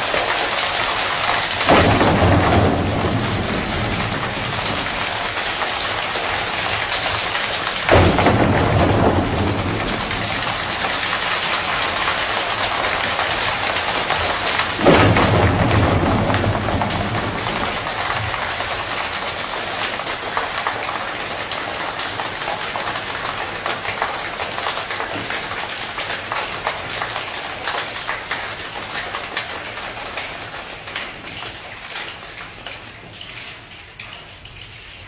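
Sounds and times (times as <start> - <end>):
hands patting like rain: 1.6 - 19.4.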